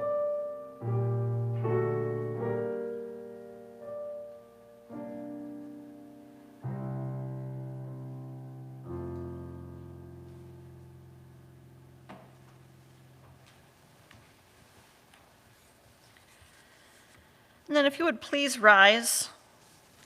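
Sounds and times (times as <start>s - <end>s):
piano playing slow chords: 0.0s - 13.5s.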